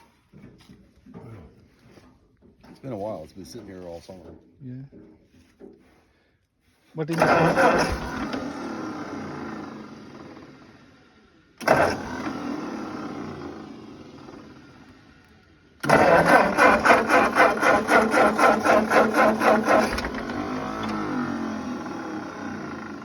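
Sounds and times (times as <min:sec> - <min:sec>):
starter cranking tractor engine: 0:07.1 - 0:23.0.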